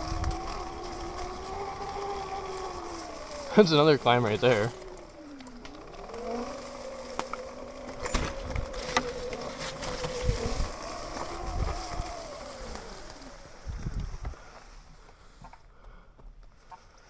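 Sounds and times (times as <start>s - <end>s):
electric motorbike motor whining: 0.0s - 17.0s
bike knocks and thumps: 7.2s - 11.9s.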